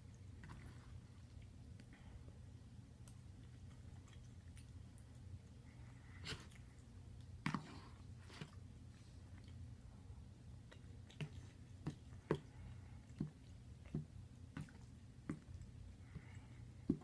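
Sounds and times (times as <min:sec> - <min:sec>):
low steady hum: 0:00.0 - 0:17.0
mouth chewing wet smacks: 0:03.0 - 0:05.6, 0:10.6 - 0:17.0.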